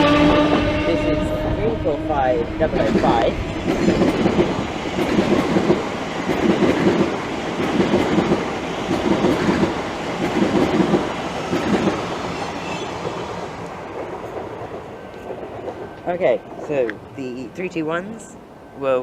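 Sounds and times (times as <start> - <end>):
train wheels clacking over rail joints: 2.8 - 13.3.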